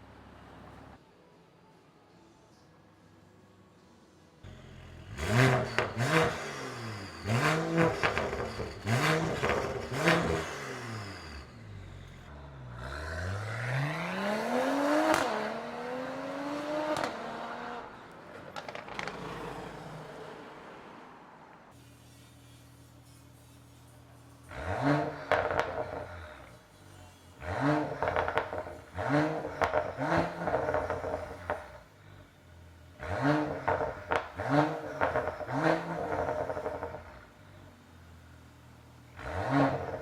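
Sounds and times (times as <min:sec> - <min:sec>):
car engine revving: 0:04.5 - 0:21.4, 0:24.5 - 0:26.7, 0:27.3 - 0:32.2, 0:33.0 - 0:37.7, 0:39.1 - 0:40.0
exhaust pops and crackles: 0:07.7 - 0:10.5, 0:18.4 - 0:19.4, 0:25.2 - 0:26.0, 0:28.0 - 0:31.8, 0:33.7 - 0:37.0.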